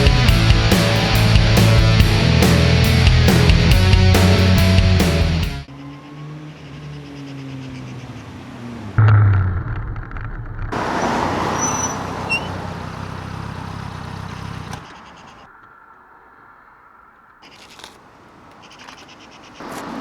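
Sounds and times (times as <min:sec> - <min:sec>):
motorcycle engine running: 0:09.0 - 0:11.0, 0:12.7 - 0:14.9.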